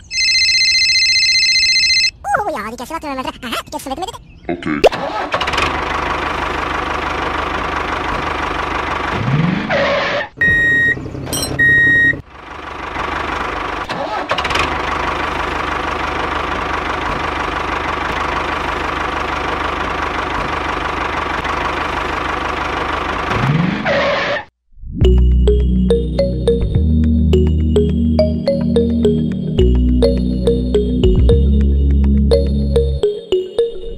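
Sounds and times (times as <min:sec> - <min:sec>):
diesel tractor engine running: 0:05.0 - 0:09.8, 0:10.4 - 0:23.9, 0:25.1 - 0:33.7
music: 0:25.0 - 0:33.9.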